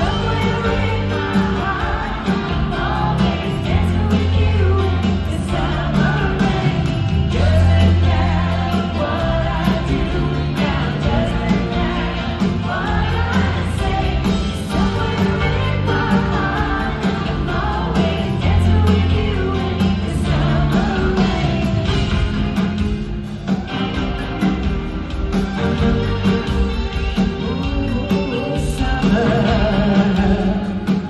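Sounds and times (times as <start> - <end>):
woman singing: 0.0 - 21.9
live pop-rock band playing: 0.0 - 31.0.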